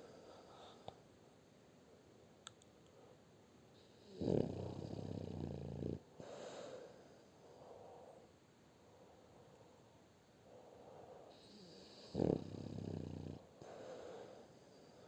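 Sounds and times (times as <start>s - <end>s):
dog snoring: 3.8s - 6.4s, 11.3s - 14.1s
dog breathing softly: 13.6s - 15.0s.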